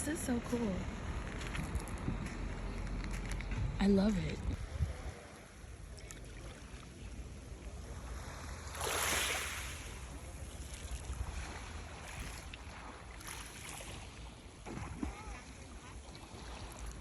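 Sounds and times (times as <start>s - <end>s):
wind rumble on microphone: 0.0s - 6.2s
sea waves washing in: 4.6s - 17.0s.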